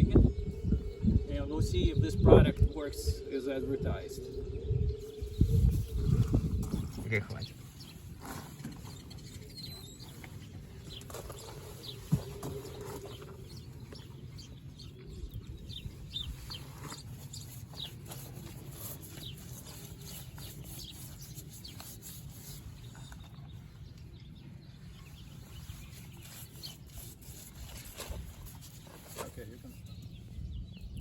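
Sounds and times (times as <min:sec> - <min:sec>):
steady low rumble: 0:00.0 - 0:08.2
birds chirping: 0:00.0 - 0:31.0.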